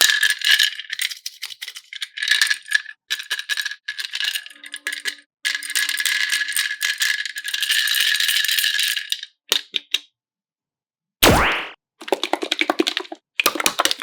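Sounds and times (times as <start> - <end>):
loud swooping sound: 11.2 - 11.8.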